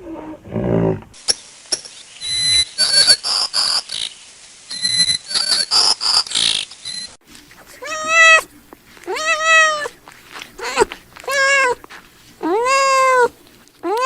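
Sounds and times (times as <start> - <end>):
small animal squeaking: 4.7 - 10.0, 10.6 - 11.8, 12.4 - 14.0
cat meowing: 7.7 - 11.8, 12.4 - 14.0.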